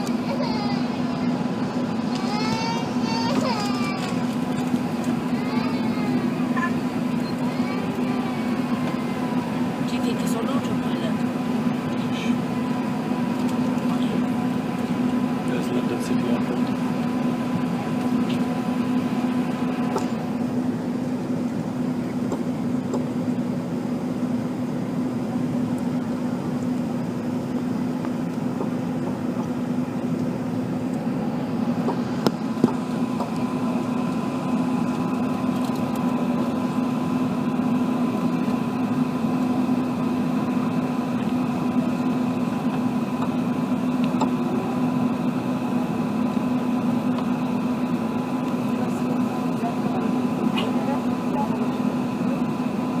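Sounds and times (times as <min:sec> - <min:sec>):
airplane cabin engine and airflow noise: 0:00.0 - 0:53.0.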